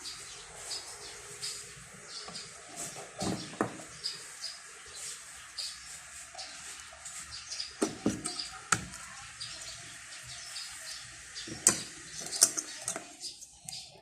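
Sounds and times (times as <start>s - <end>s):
steady hiss: 0.0s - 12.9s
small birds chirping: 0.0s - 14.0s
sharp clicks and knocks: 11.4s - 13.1s.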